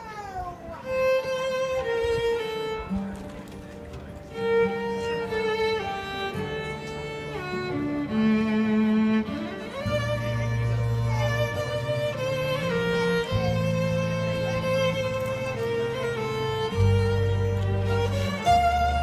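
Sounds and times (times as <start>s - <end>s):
violin slow melody: 0.6s - 19.0s
sustained low bass notes: 6.5s - 19.0s.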